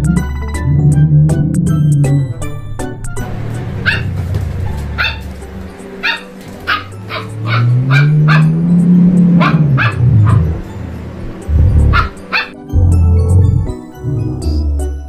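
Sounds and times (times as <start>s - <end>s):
low tone rising and falling: 0.0s - 5.8s, 7.2s - 15.0s
puppy yapping: 3.8s - 8.6s, 9.3s - 10.6s, 11.9s - 12.6s.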